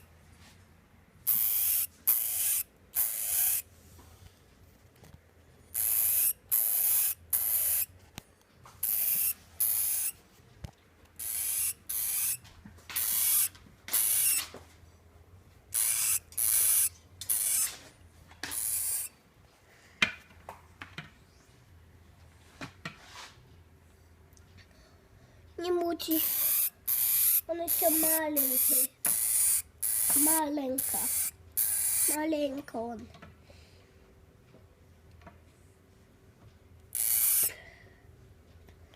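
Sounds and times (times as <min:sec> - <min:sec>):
hamster hissing: 0:01.3 - 0:03.7, 0:05.7 - 0:07.9, 0:08.8 - 0:10.2, 0:11.2 - 0:12.4, 0:13.0 - 0:14.4, 0:15.7 - 0:17.8, 0:18.5 - 0:19.1, 0:26.1 - 0:32.2, 0:36.9 - 0:37.6.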